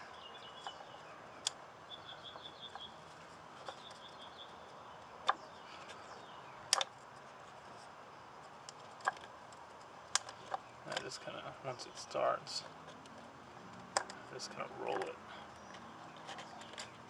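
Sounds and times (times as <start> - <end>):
small bird chirping: 0.0 - 6.8, 14.2 - 17.0
sharp clicks: 6.7 - 6.9.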